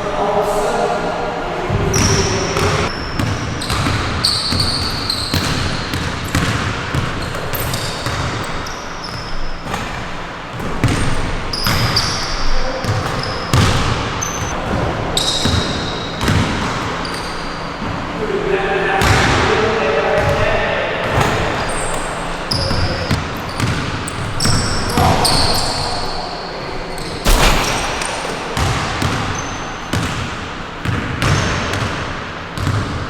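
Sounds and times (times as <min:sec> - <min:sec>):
sneakers squeaking on hardwood: 0:01.8 - 0:18.1, 0:21.6 - 0:26.2, 0:27.0 - 0:31.8
basketball bouncing on gym floor: 0:01.9 - 0:17.1, 0:19.0 - 0:19.4, 0:22.5 - 0:25.6, 0:27.2 - 0:33.0.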